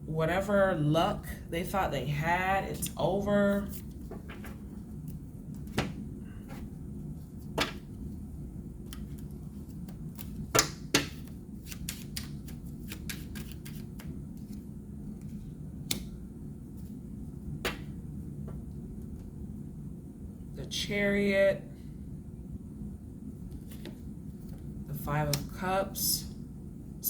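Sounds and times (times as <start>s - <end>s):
steady low hum: 0.0s - 27.0s
cards clicking and tapping: 7.5s - 7.9s, 8.8s - 14.6s, 17.6s - 17.9s
sharp card snaps: 10.2s - 14.1s, 17.6s - 17.9s.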